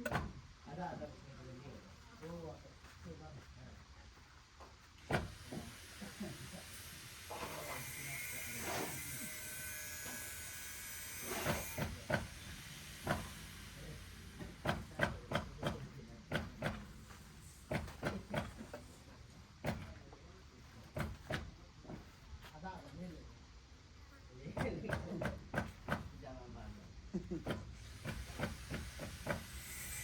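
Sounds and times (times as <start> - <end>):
steady hiss: 12.0 - 15.8.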